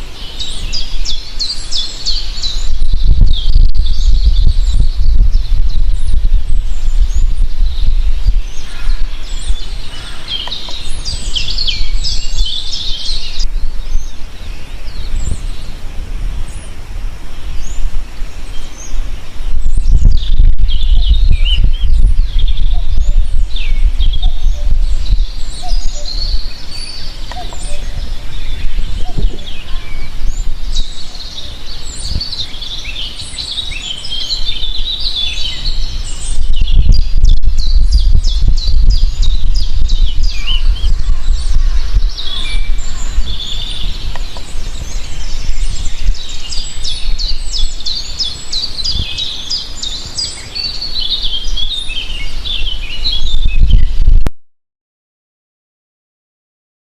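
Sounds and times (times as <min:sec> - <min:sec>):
songbirds chirping: 0:00.0 - 0:54.1
heavy low rumble: 0:02.6 - 0:14.3, 0:19.2 - 0:32.3, 0:34.1 - 0:47.8.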